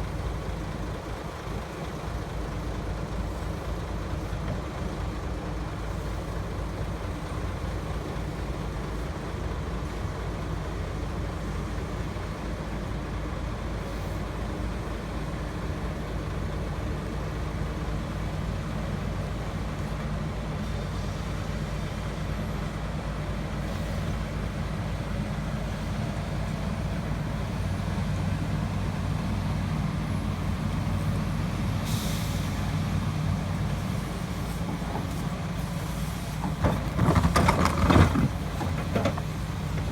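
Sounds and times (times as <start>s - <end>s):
heavy diesel engines droning: 0.0s - 39.9s.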